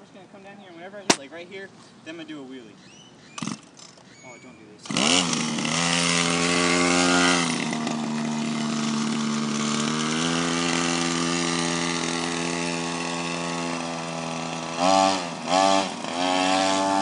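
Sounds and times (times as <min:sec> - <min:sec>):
small engine revving: 0:03.3 - 0:04.0, 0:04.8 - 0:17.0.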